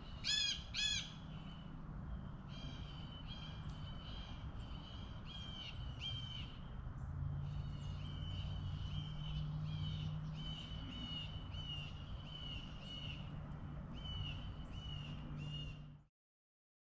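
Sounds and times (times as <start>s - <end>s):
bird calling: 0.0s - 6.6s.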